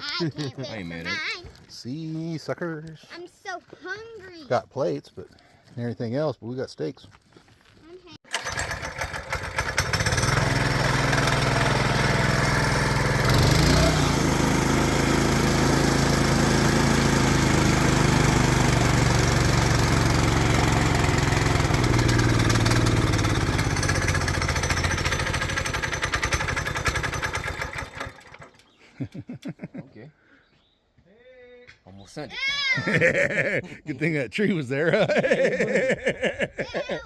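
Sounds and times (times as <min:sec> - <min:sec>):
engine running hard: 0:08.5 - 0:28.1.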